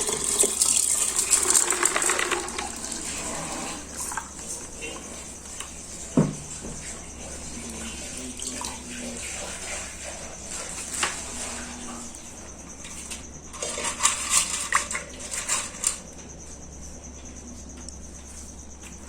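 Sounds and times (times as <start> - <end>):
water pouring into glass bowl: 0.0 - 4.4.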